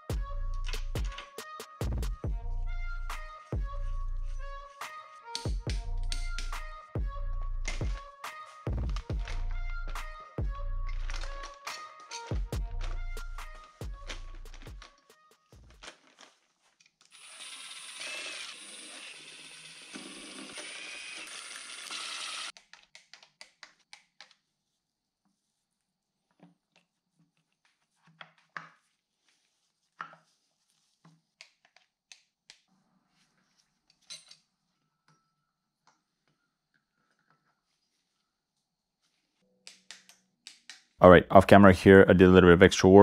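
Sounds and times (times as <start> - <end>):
power tool motor running: 17.1 - 22.5.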